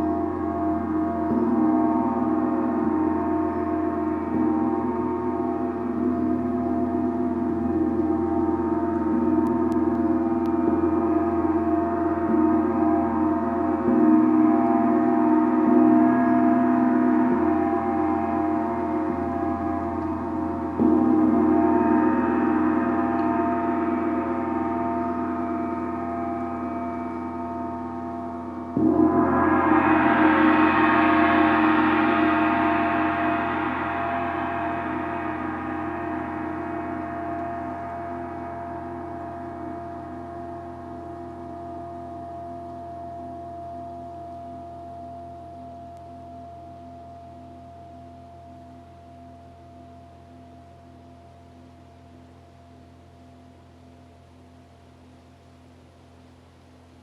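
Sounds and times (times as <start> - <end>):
gong ringing: 0.5 - 40.7.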